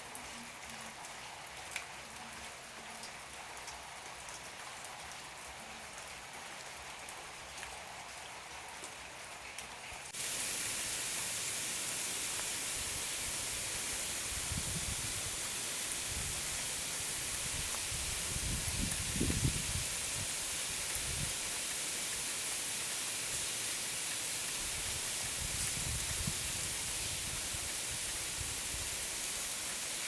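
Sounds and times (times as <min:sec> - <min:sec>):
raindrops ticking: 0:10.1 - 0:26.4
heavy rain falling: 0:10.1 - 0:30.0.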